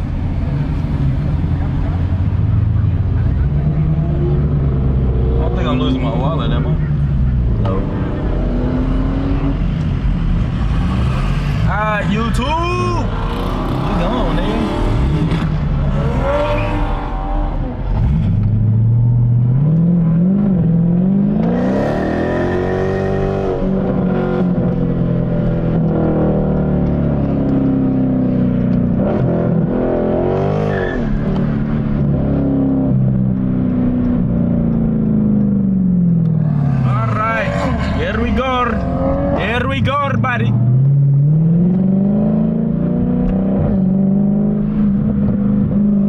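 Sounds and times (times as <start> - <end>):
car engine accelerating: 0.0 - 46.0.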